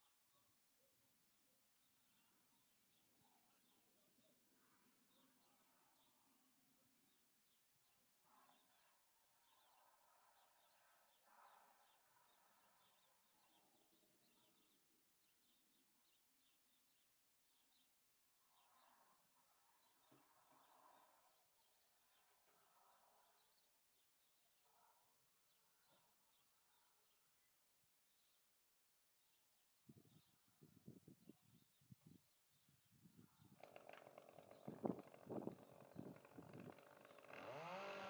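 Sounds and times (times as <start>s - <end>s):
small birds chirping: 29.2s - 38.0s.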